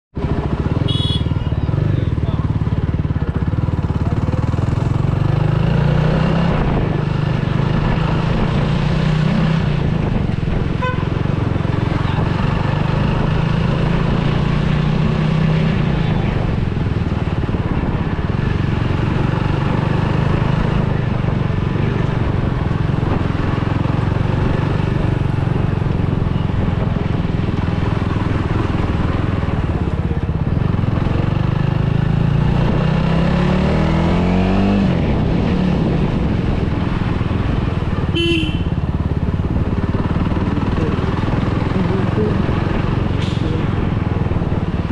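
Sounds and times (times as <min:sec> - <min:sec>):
street traffic: 0:00.1 - 0:44.9
motorcycle engine running: 0:00.2 - 0:44.9
short horn beep: 0:00.8 - 0:01.5, 0:38.2 - 0:38.8.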